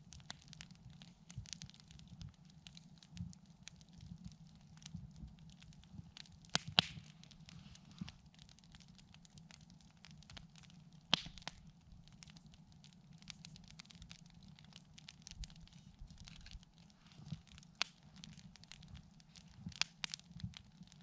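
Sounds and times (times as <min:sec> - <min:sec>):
campfire crackling: 0:00.0 - 0:21.0
loud fire pops: 0:06.1 - 0:08.8, 0:11.0 - 0:12.4.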